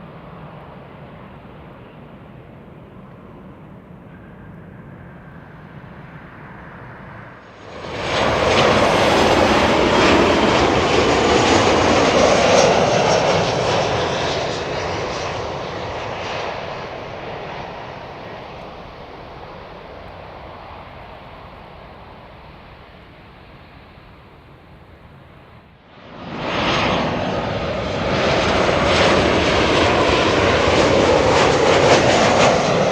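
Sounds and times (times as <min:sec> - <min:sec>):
jet engines passing: 0:05.2 - 0:18.5
thin high whine: 0:07.7 - 0:13.0.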